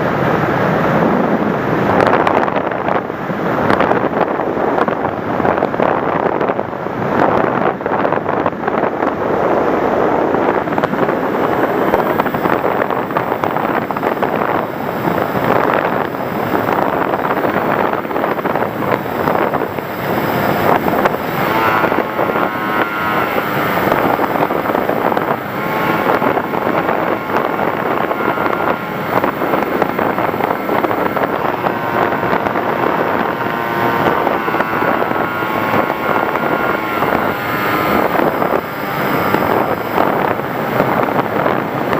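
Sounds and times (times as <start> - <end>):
faint motor whine: 0.0 - 41.9
wind rushing over microphone: 0.0 - 41.9.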